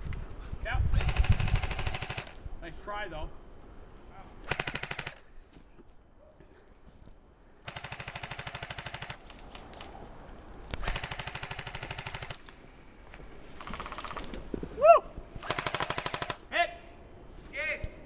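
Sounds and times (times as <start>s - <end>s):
airsoft rifle bursts: 4.4s - 5.2s, 10.8s - 12.4s.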